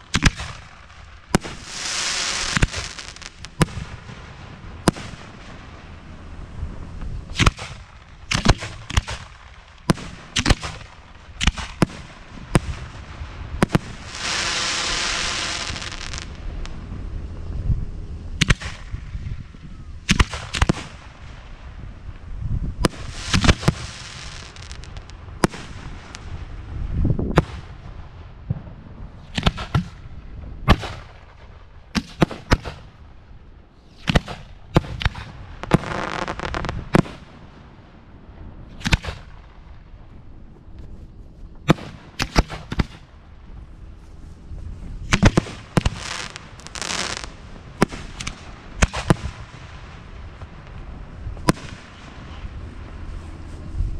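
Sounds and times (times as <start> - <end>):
fireworks crackle: 0.0 - 33.0, 33.8 - 53.9
fireworks bangs: 0.0 - 33.1, 34.0 - 43.9, 44.5 - 53.9.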